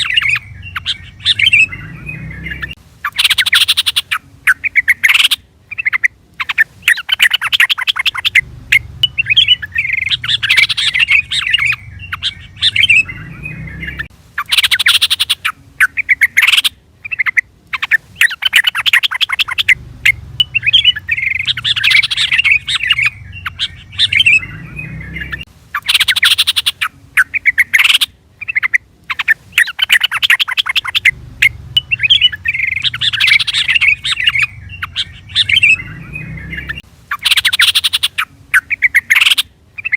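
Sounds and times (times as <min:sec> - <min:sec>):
bulbul chattering and warbling: 0:00.0 - 0:39.9.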